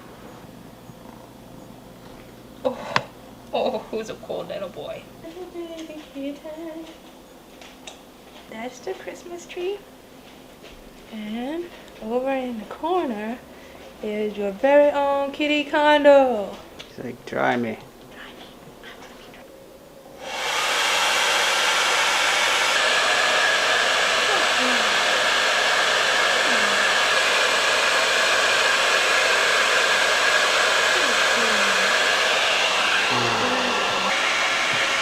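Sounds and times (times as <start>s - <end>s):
hair dryer running: 20.2s - 35.0s.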